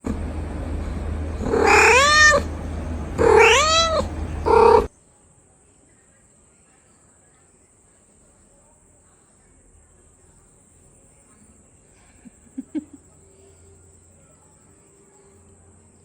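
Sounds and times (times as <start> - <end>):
kitten meowing: 1.4 - 2.5, 3.2 - 4.9.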